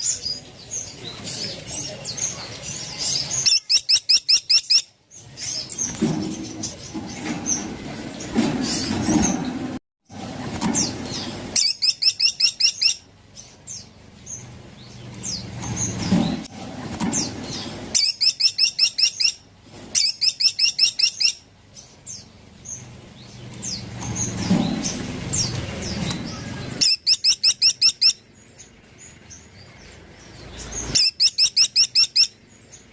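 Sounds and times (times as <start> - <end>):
soft bird chirps: 0.0 - 7.7, 10.8 - 16.4, 17.2 - 19.4, 20.0 - 32.9
woodpecker rapid high calls: 3.4 - 4.9, 11.6 - 13.0, 20.0 - 21.4, 26.8 - 28.2, 30.9 - 32.4.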